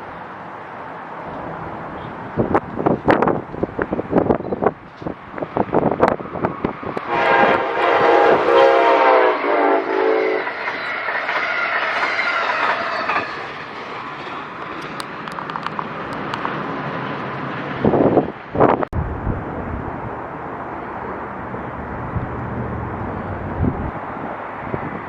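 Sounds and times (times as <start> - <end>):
train rushing past: 0.0 - 25.0
train horn chord: 7.0 - 10.6
wheels clicking over rail joints: 10.4 - 17.8.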